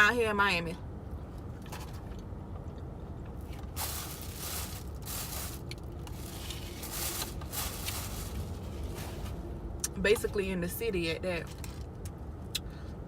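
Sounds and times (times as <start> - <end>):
low rumble inside car: 0.0 - 13.0.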